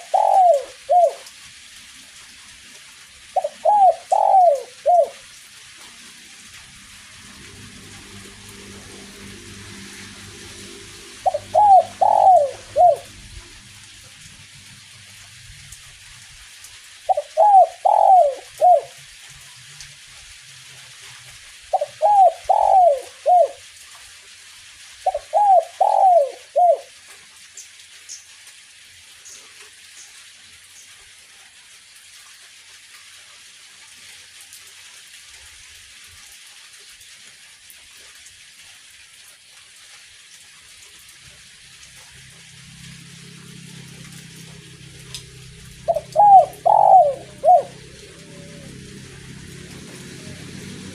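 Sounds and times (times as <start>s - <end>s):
dove cooing: 0.0s - 1.3s, 3.3s - 5.3s, 7.8s - 13.6s, 17.1s - 19.0s, 21.7s - 23.7s, 25.0s - 26.9s, 44.5s - 50.9s
light drizzling rain: 0.0s - 50.9s.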